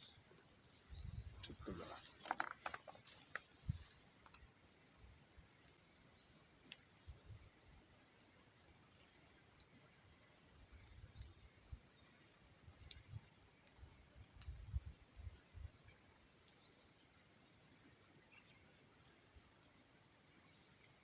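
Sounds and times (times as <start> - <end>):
campfire crackling and popping: 0.0 - 5.9, 6.6 - 7.0, 12.7 - 17.7.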